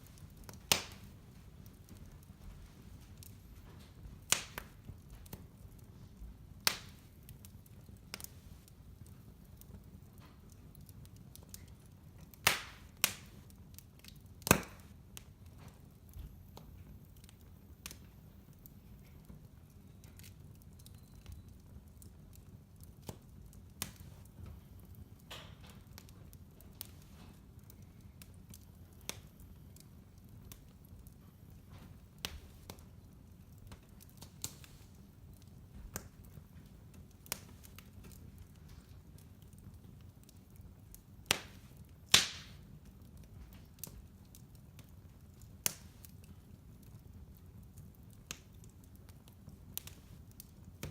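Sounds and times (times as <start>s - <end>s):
fire crackling and popping: 0.0s - 50.9s.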